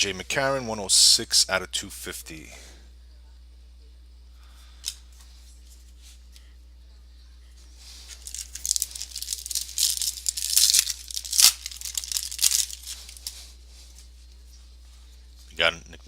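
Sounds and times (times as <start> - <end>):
foil wrapper tearing and crinkling: 8.2 - 13.3.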